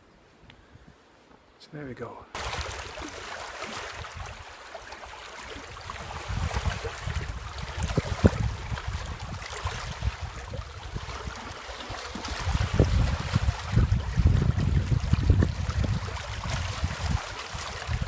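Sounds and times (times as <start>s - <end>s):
wind buffeting microphone: 3.9s - 4.5s, 5.6s - 18.0s.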